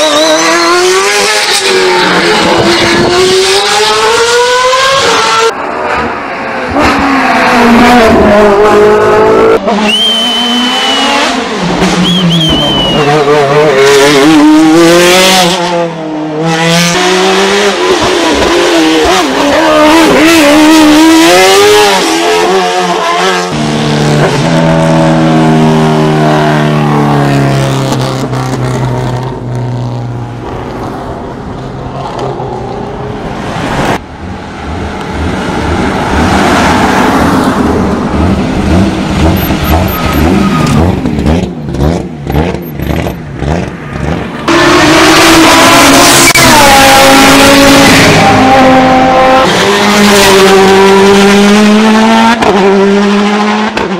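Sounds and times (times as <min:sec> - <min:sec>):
race car engines at full throttle: 0:00.0 - 0:53.9
tyre squeal: 0:11.9 - 0:13.3, 0:39.3 - 0:41.0.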